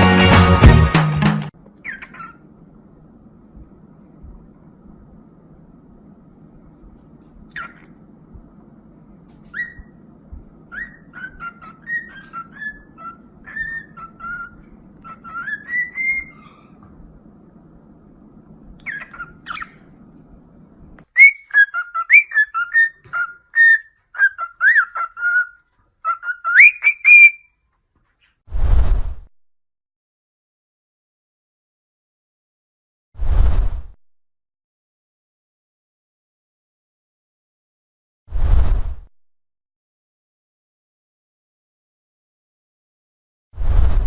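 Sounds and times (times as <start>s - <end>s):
low hum: 1.6s - 15.4s
parrot whistling: 9.5s - 10.0s, 10.7s - 16.8s, 21.2s - 27.5s.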